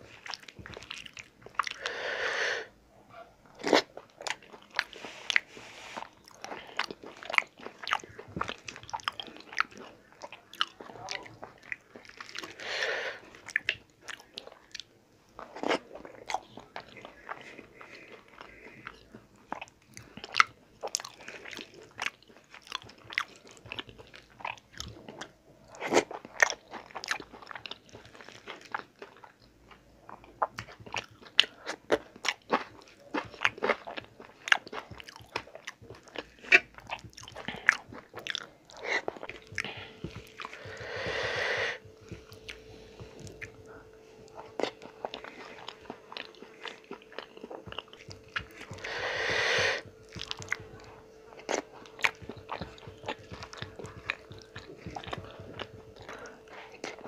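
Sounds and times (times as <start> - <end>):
chewing and lip smacking: 0.0 - 1.9, 3.5 - 57.0
fingers working food on plate: 36.0 - 43.6, 44.2 - 57.0.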